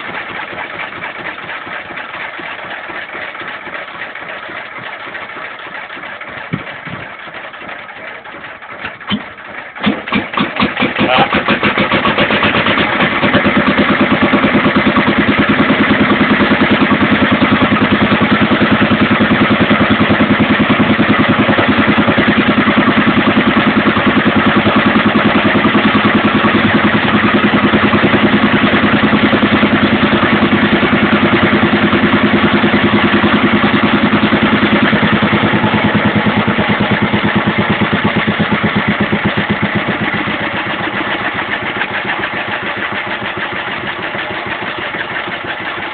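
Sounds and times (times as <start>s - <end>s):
stationary engine running: 0.0s - 45.9s.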